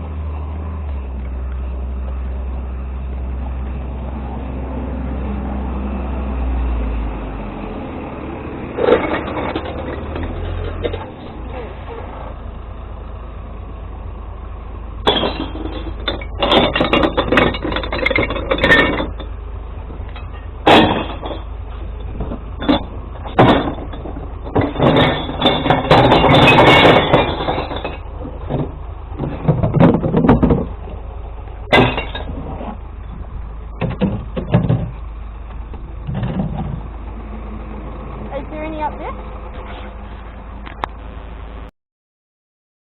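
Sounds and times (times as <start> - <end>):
truck engine idling: 0.0 - 41.7
glass clattering and crashing: 8.8 - 11.3, 15.0 - 19.4, 20.1 - 30.7, 31.7 - 32.8.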